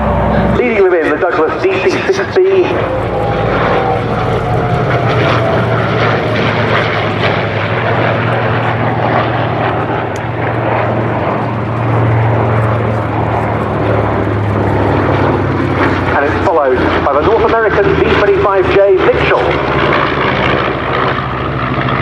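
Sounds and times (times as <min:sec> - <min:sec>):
faint engine tone: 0:00.0 - 0:19.4
propeller planes droning: 0:00.0 - 0:22.0.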